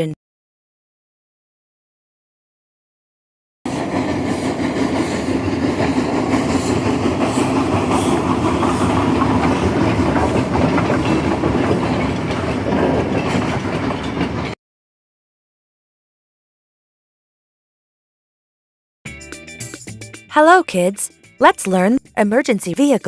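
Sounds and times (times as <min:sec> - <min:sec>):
steam locomotive rumbling: 0:03.7 - 0:14.6.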